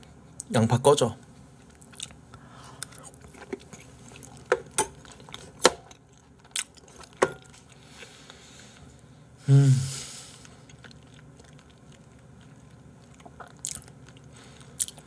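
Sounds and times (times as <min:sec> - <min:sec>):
wet chewing clicks and crunches: 0:01.6 - 0:08.1, 0:10.4 - 0:15.0
person grunting: 0:09.4 - 0:10.1.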